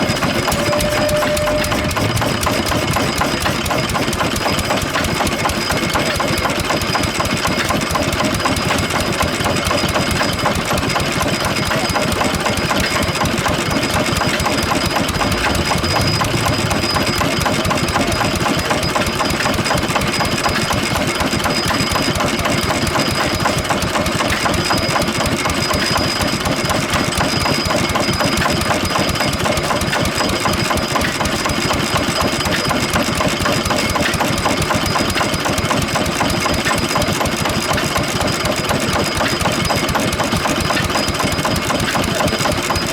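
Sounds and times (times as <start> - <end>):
stationary engine clattering: 0.0 - 42.9.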